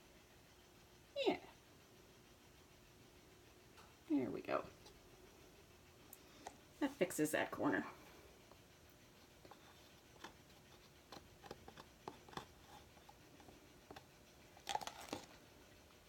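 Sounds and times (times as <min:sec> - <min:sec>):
hands handling materials: 0:09.5 - 0:15.4.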